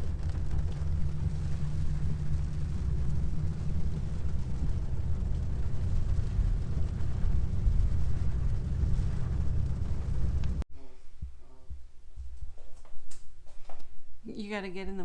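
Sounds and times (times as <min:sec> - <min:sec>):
road and engine rumble: 0:00.0 - 0:10.6.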